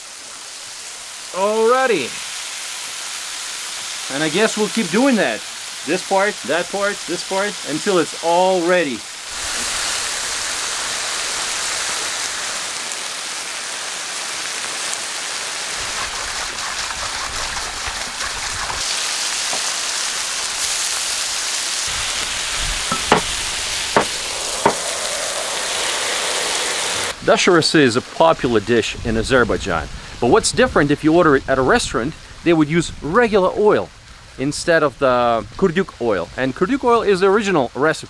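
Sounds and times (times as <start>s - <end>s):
meat and vegetables sizzling: 0.0s - 27.2s.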